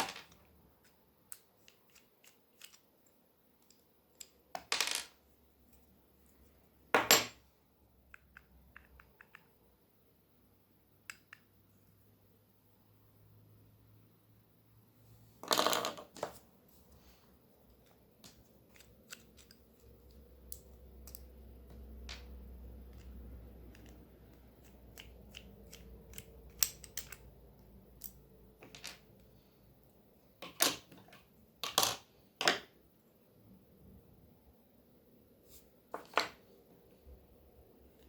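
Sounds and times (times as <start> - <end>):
plastic parts clicking: 0.1 - 4.7, 17.8 - 21.3, 22.9 - 29.0
plastic parts clattering: 28.0 - 29.0.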